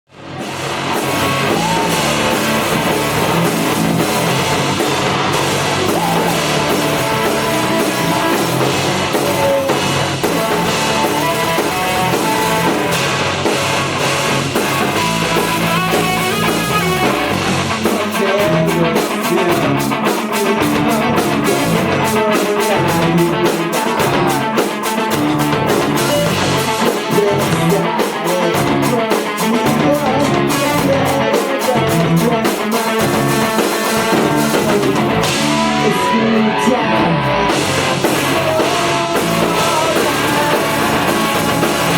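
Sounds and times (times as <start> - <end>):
bass guitar: 0.1 - 41.9
drum kit: 0.1 - 41.9
electric guitar: 0.1 - 41.9.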